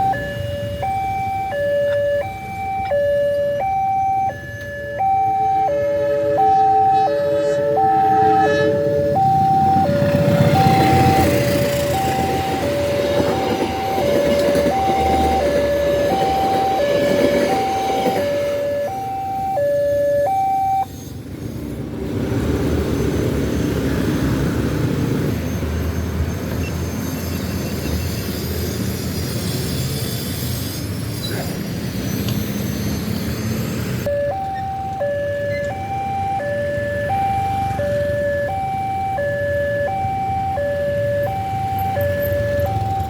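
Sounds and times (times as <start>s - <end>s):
two-tone crossing alarm: 0.0s - 21.2s, 31.8s - 43.0s
passing train rumbling: 0.0s - 43.0s.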